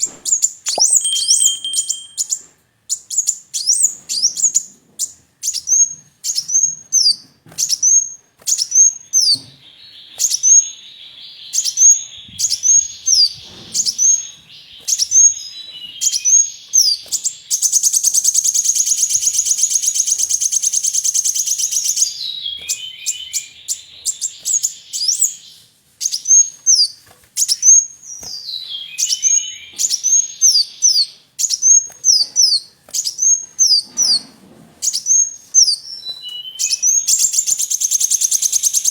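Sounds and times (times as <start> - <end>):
sunbird chirping: 0.0 - 4.6, 8.6 - 33.9, 34.9 - 38.9
lower bird chatter: 0.0 - 38.9
buzzing high bird trill: 0.7 - 2.4.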